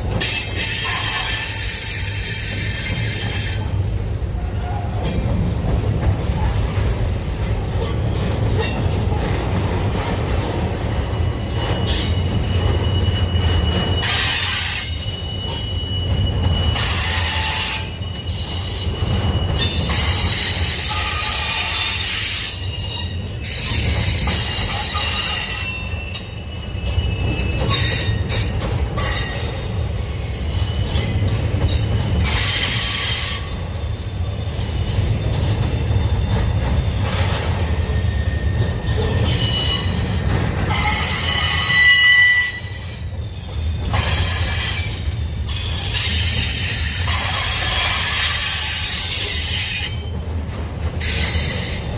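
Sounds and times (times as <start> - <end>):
freight train rumbling: 0.0 - 51.9
wheel squeal: 10.9 - 29.6, 30.2 - 50.1.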